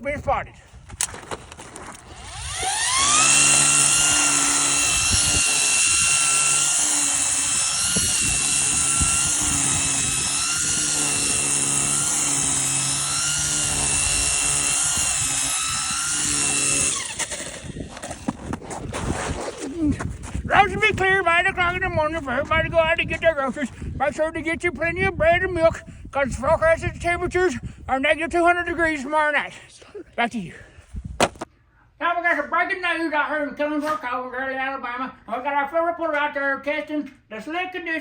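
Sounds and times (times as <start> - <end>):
snow blower engine whining: 2.0 - 18.4.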